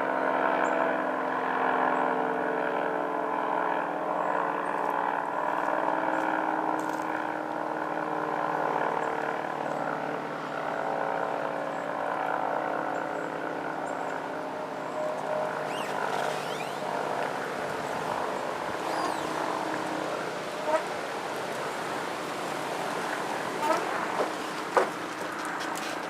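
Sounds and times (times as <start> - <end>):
rotating warning siren: 15.1 - 21.1.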